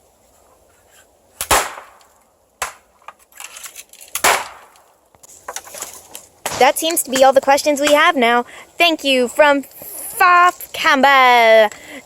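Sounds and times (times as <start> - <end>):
bamboo stalks cracking: 1.4 - 6.6.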